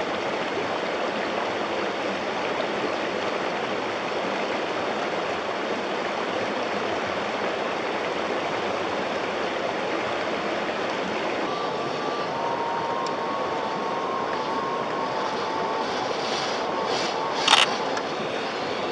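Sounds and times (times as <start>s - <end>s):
river water rushing: 0.0s - 18.9s
high electric motor whine: 10.6s - 18.9s.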